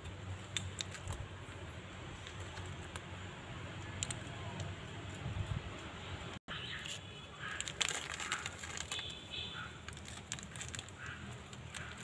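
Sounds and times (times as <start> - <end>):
sharp clicks and crackles: 0.0 - 1.3, 2.2 - 6.0, 6.8 - 9.2, 9.8 - 12.0
birds chirping: 5.9 - 9.9.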